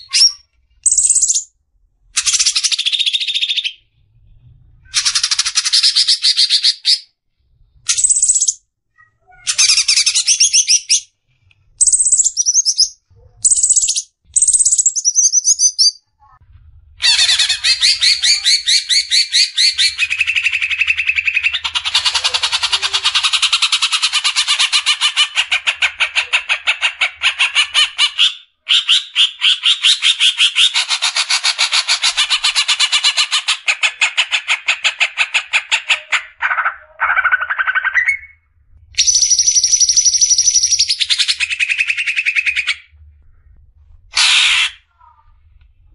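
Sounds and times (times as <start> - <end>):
rapid harsh bird chatter: 11.8 - 15.9, 17.0 - 38.2, 39.0 - 42.9, 44.2 - 44.8
songbird calling: 11.8 - 16.0.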